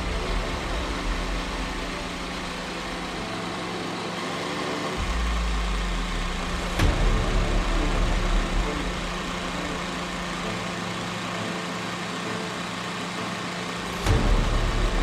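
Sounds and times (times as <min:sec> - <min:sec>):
drill motor hum: 0:00.0 - 0:15.0
grinding rumble: 0:00.0 - 0:15.0.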